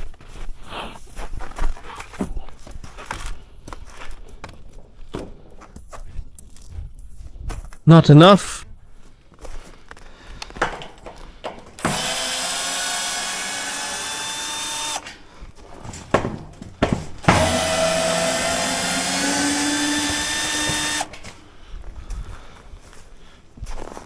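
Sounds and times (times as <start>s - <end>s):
power drill running: 11.5s - 15.3s, 17.1s - 21.4s
knocks: 15.8s - 21.2s.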